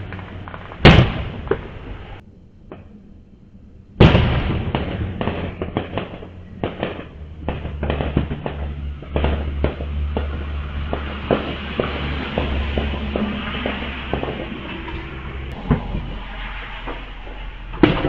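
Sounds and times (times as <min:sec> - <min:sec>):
firework bang: 0:00.0 - 0:02.2, 0:04.0 - 0:14.8
fireworks crackling pops: 0:00.0 - 0:02.9, 0:04.0 - 0:14.7
low steady hum: 0:00.0 - 0:18.0.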